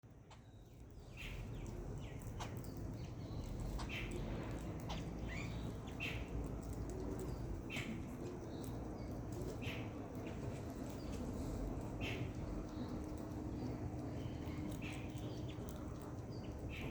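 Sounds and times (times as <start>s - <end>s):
low background rumble: 0.0s - 16.9s
bird chirping: 0.3s - 6.3s.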